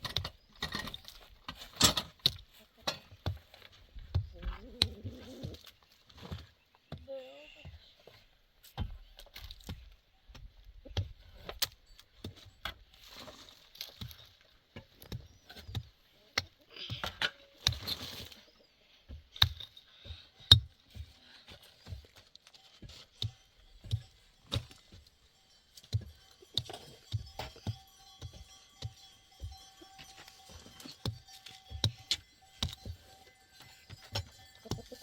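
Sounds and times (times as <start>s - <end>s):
rustling and scraping: 11.1s - 35.0s.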